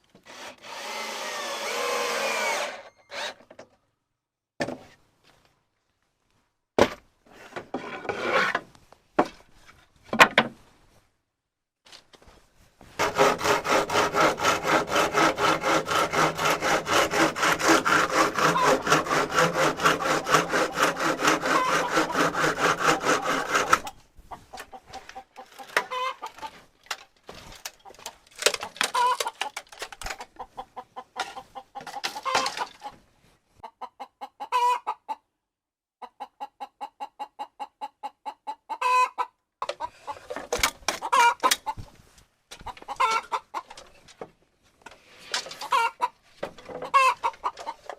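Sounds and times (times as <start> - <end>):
loud fast rasping: 13.0 - 23.9
chickens clucking: 23.6 - 26.6, 27.8 - 33.0, 33.6 - 35.3, 36.0 - 41.9, 42.6 - 44.1, 45.5 - 47.9.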